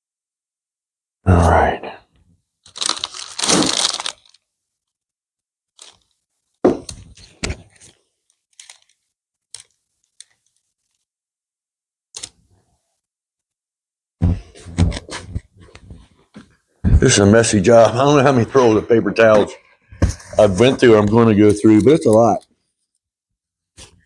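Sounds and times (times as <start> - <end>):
rustling and tearing: 2.6 - 4.4, 5.8 - 6.2, 6.9 - 11.1.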